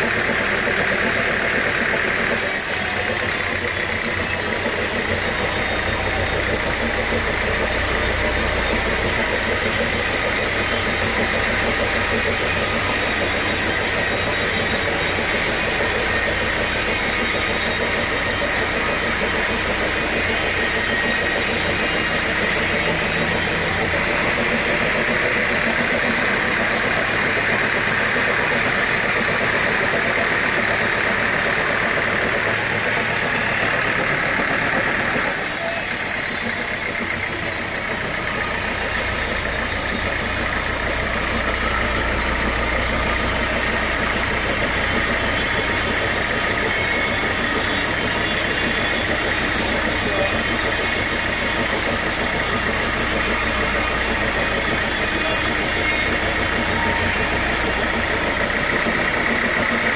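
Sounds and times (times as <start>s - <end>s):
sawmill machinery drone: 0.0s - 59.9s.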